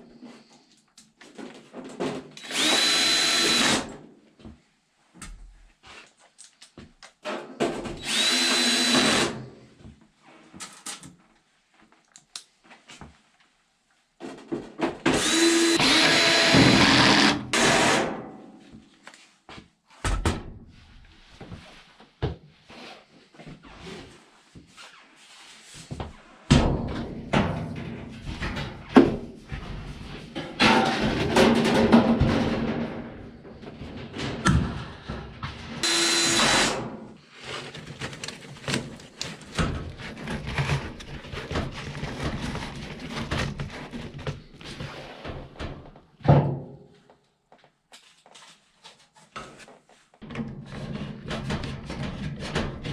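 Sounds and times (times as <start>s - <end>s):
power drill whirring: 2.4s - 3.9s, 8.0s - 9.4s, 15.2s - 18.0s, 35.8s - 36.9s.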